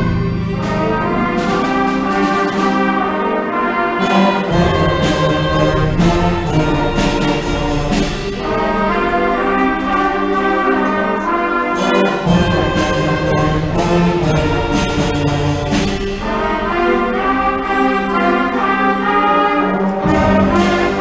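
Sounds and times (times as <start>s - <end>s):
brass playing: 0.0s - 21.0s
percussion strikes: 0.0s - 21.0s
school band playing: 0.0s - 21.0s.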